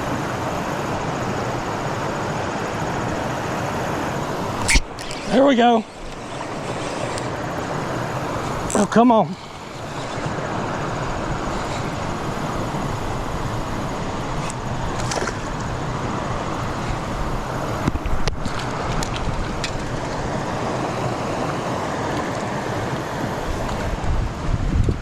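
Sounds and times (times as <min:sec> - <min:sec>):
creek water flowing: 0:00.0 - 0:24.6
short clicks: 0:04.6 - 0:10.4.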